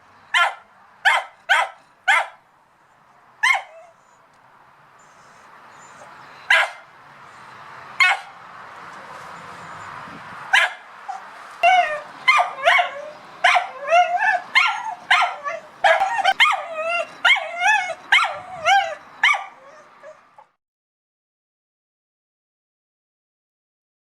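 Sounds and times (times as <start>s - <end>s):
dog barking: 0.3s - 2.4s, 3.4s - 3.9s, 6.0s - 6.9s, 8.0s - 8.4s, 10.5s - 20.2s.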